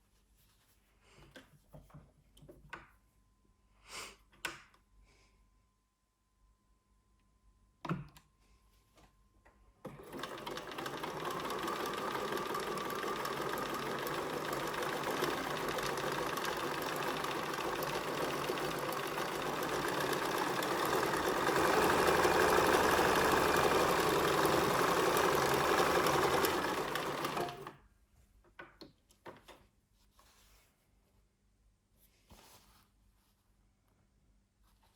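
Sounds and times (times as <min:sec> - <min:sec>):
sewing machine whirring: 0:09.8 - 0:27.8.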